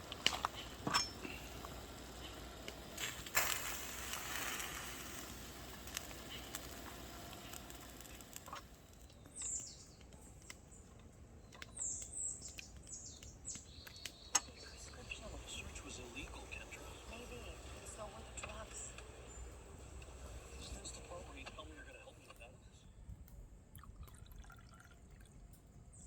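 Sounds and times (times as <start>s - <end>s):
small birds chirping: 0.0s - 23.4s
soft steady hiss: 0.0s - 26.0s.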